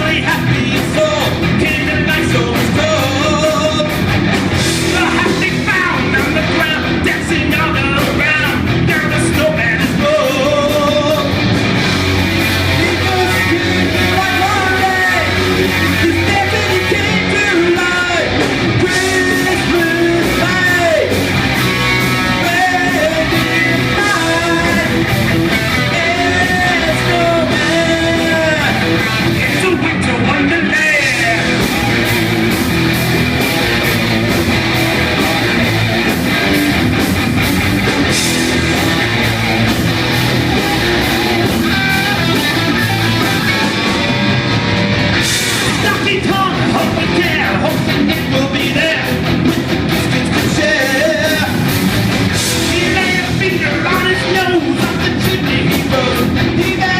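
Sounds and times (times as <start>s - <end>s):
heavy metal band playing live: 0.0s - 56.9s.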